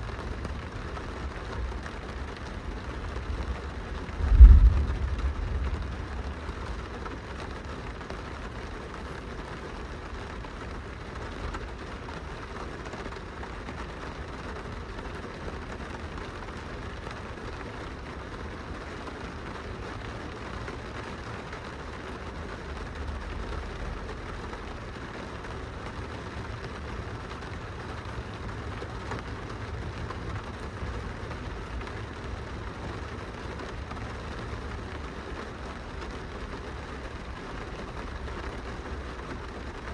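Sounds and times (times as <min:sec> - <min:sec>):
rain on window glass: 0:00.0 - 0:39.9
low rumble: 0:03.1 - 0:07.6.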